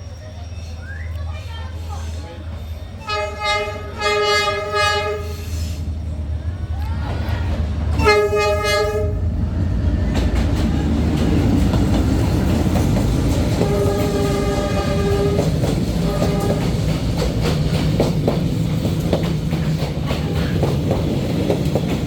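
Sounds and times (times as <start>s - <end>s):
train rumbling past: 0.0s - 22.0s
locomotive horn blasts: 3.0s - 5.8s, 8.0s - 9.3s, 13.5s - 16.8s
wheels clicking over rail joints: 9.7s - 22.0s.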